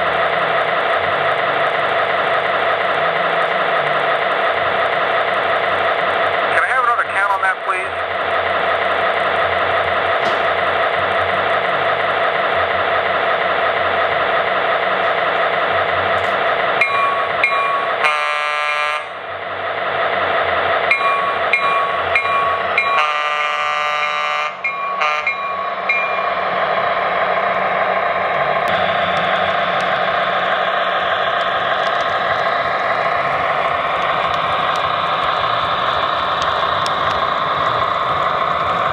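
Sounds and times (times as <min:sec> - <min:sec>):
model diesel engine sound: 0:00.0 - 0:38.9
locomotive bell ringing: 0:16.8 - 0:19.3, 0:20.8 - 0:27.9
locomotive horn blasts: 0:18.0 - 0:19.2, 0:22.8 - 0:25.4.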